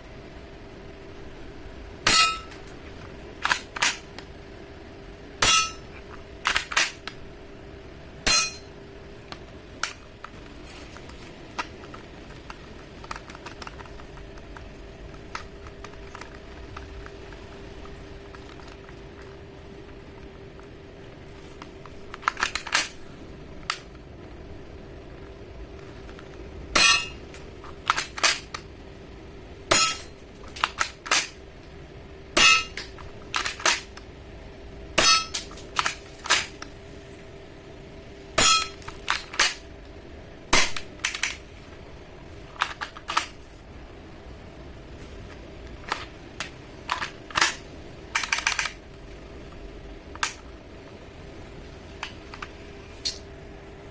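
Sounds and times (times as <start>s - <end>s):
airsoft pistol shots: 5.4s - 5.8s, 40.6s - 40.9s.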